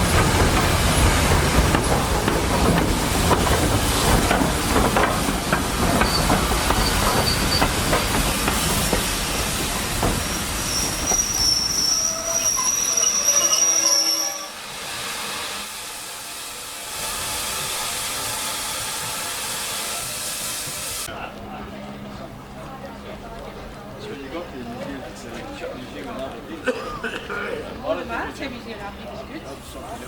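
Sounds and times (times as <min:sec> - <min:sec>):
steady steam hiss: 0:00.0 - 0:11.4, 0:14.4 - 0:21.1
train wheels rumbling and clicking: 0:00.0 - 0:13.7
high wheel squeal: 0:06.0 - 0:08.8, 0:10.0 - 0:14.6.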